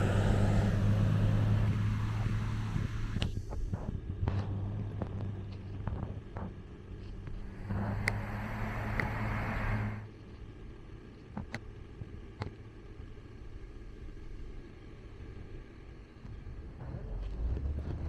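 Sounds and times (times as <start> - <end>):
rush of noise: 0.0 - 3.8, 7.4 - 10.0
vehicle engine humming: 0.0 - 18.0.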